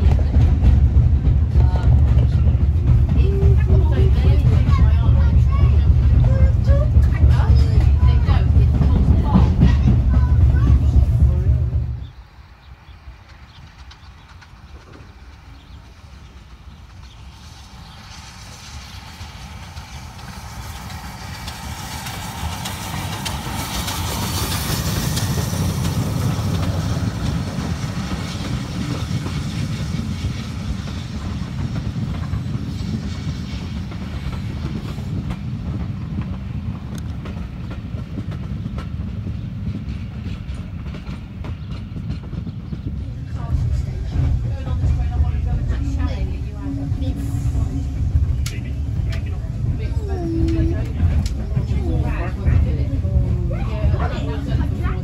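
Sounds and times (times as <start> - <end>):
steam locomotive passing: 0.0 - 55.0
train coaches rumbling: 0.0 - 55.0
wheels clicking over rail joints: 13.1 - 55.0.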